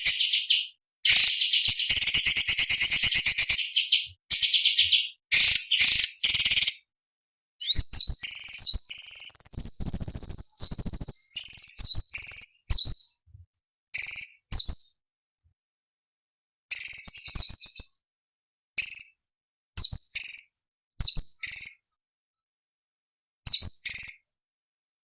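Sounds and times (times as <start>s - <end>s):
bird harsh rapid chattering: 0.0s - 6.8s.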